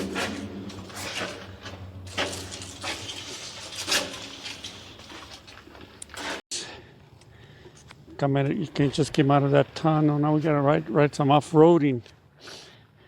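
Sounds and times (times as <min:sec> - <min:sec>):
dry brush rustling and crackling: 0:00.0 - 0:06.4
knocks and scrapes: 0:00.0 - 0:06.4.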